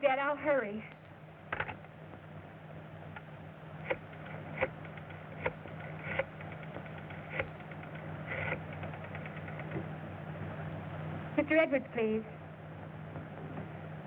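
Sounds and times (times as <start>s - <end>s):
film soundtrack hum: 0.0s - 14.0s
clicks and knocks: 3.2s - 9.9s.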